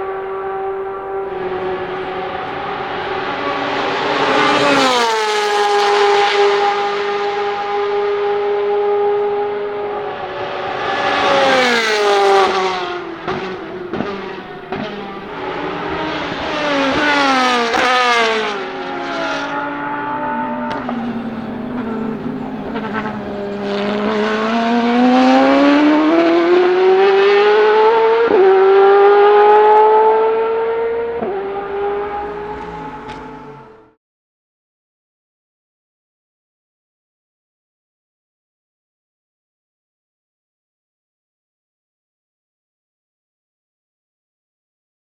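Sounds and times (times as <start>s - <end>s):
race car engine revving: 0.0s - 34.0s
exhaust cracks: 19.8s - 25.0s.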